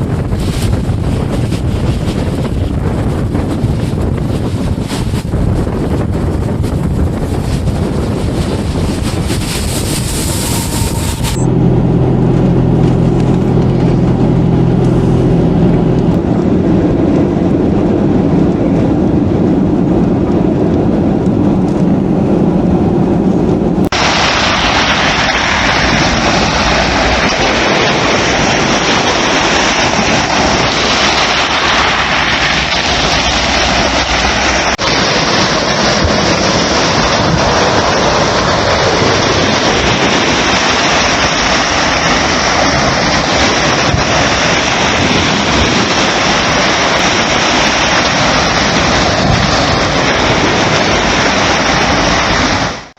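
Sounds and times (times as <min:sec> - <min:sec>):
surf: 0:00.0 - 0:16.3, 0:23.8 - 0:52.9
wind: 0:00.0 - 0:52.9
low mechanical hum: 0:05.3 - 0:23.9
rain: 0:23.8 - 0:52.9.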